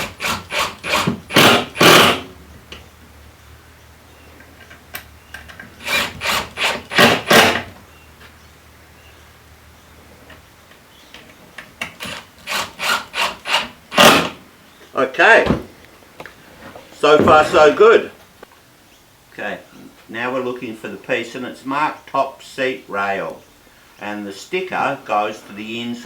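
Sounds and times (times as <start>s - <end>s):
impact driver driving screws: 0.0s - 2.3s, 5.8s - 7.7s, 11.9s - 14.4s.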